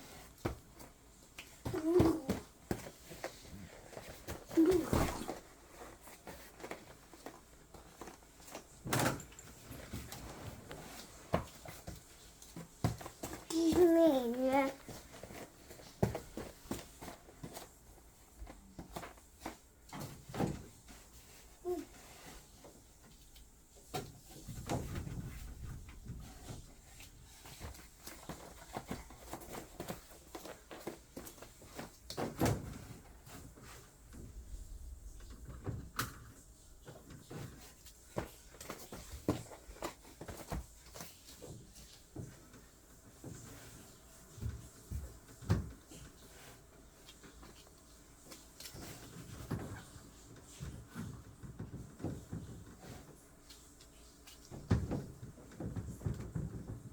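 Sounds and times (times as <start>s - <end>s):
soft knocks on air conditioner: 54.5s - 56.9s.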